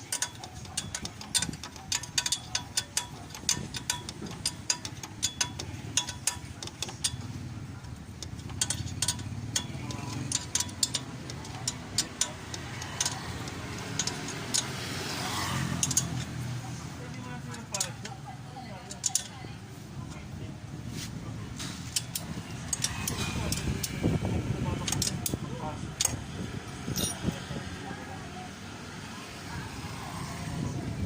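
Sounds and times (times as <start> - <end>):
metallic hand tool clicks: 0.1 - 16.6, 18.9 - 19.4, 21.9 - 24.0, 24.7 - 25.4.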